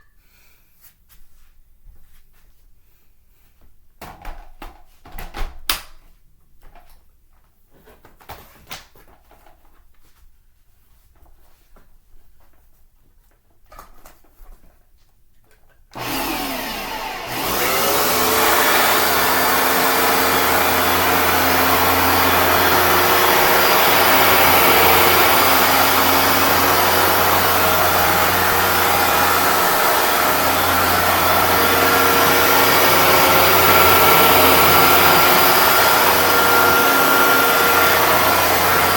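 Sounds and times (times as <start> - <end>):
carpet cleaner motor whining: 16.0 - 38.9.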